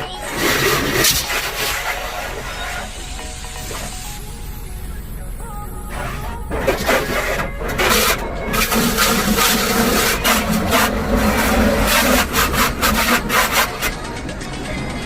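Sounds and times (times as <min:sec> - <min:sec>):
hand scrubbing car body: 0:00.3 - 0:02.9, 0:05.9 - 0:14.1.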